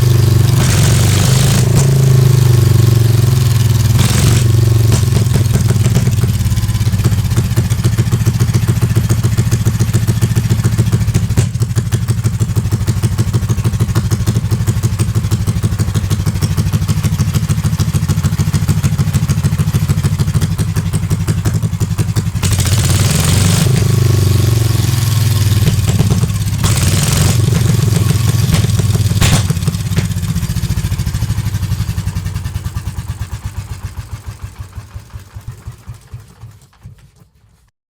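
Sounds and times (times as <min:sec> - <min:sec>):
engine thudding: 0:00.0 - 0:37.4.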